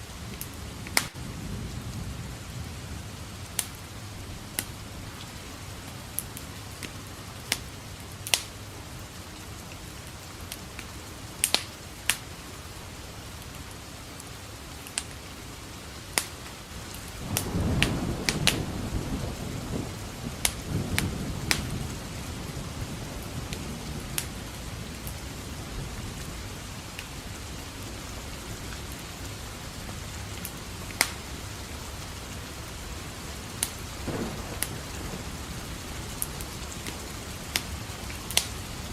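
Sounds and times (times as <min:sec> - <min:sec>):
steady rain: 0:00.0 - 0:38.9
wood fire crackling: 0:00.0 - 0:38.9
thunder rolling: 0:17.2 - 0:26.7, 0:33.9 - 0:38.9.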